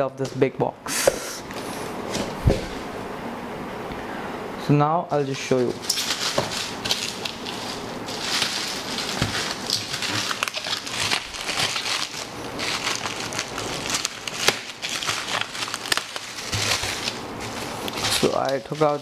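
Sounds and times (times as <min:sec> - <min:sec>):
bubble wrap crinkling: 0:05.2 - 0:19.0.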